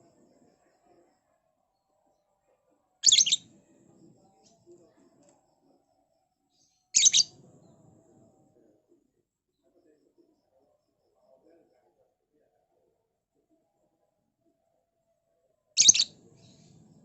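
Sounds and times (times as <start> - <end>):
lovebird shrill rapid chirps: 3.0 - 3.4, 7.0 - 7.3, 15.8 - 16.1.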